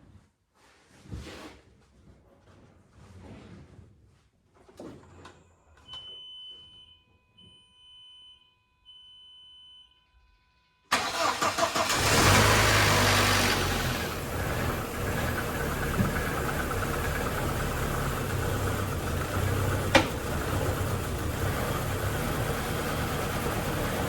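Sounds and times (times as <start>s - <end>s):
faint steady tone: 5.7s - 10.9s
car engine cranking and starting: 10.9s - 24.0s.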